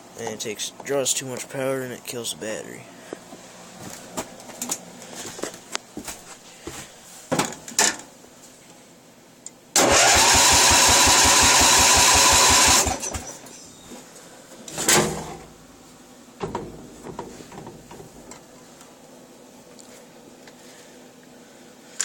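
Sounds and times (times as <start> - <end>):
engine starter cranking: 9.8 - 13.4.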